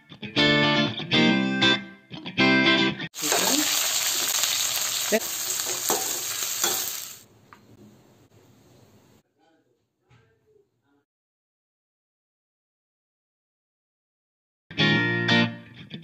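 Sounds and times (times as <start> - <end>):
onions sizzling in oil: 3.2 - 7.3.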